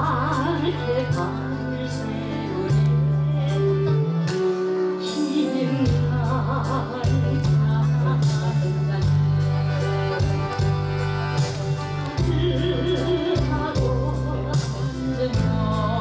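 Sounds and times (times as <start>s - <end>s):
woman singing: 0.0s - 10.7s, 12.0s - 16.0s
accompaniment chords and beat: 7.1s - 15.6s.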